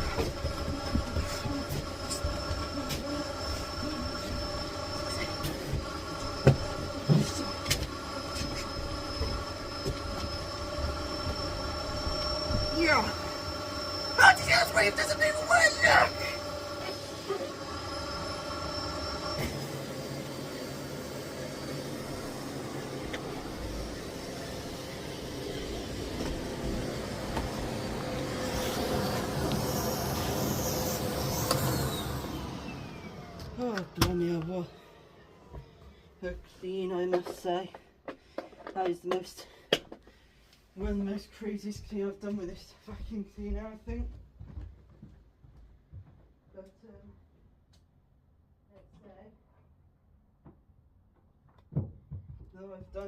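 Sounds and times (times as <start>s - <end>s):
vacuum cleaner whining: 0.0s - 40.2s.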